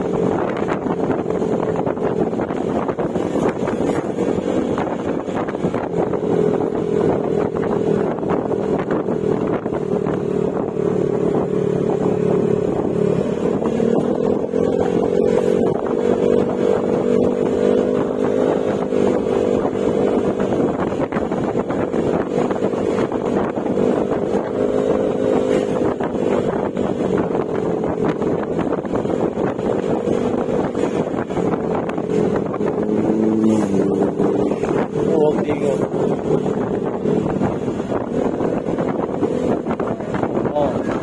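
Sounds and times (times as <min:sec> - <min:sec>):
scooter engine running: 0:00.0 - 0:41.0.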